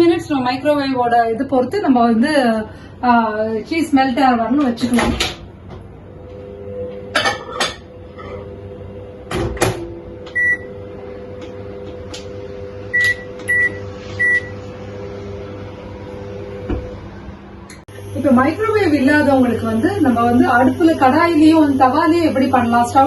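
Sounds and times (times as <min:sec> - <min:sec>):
microwave hum: 0:00.0 - 0:23.0
microwave beeps: 0:10.3 - 0:10.8, 0:12.9 - 0:14.7.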